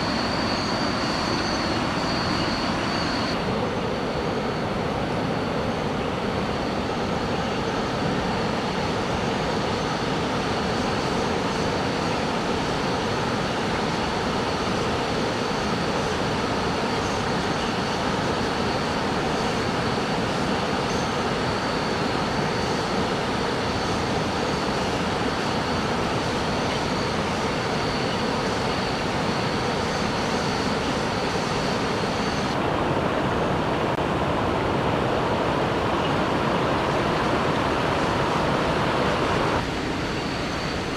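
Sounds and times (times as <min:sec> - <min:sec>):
thin high whine: 0:00.0 - 0:40.9
waterfall rushing: 0:23.1 - 0:40.9.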